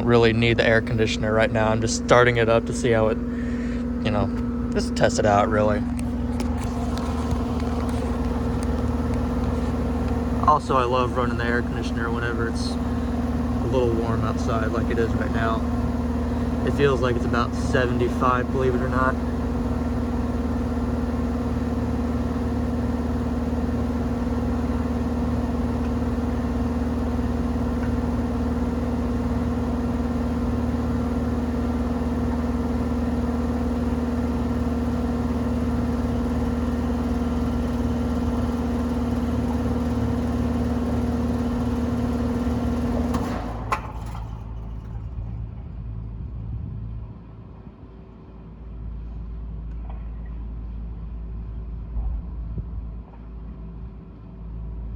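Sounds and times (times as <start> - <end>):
sharp shut-off click: 0.0 - 45.0
air conditioner unit humming: 0.0 - 45.8
fan whirring to a stop: 0.0 - 48.1.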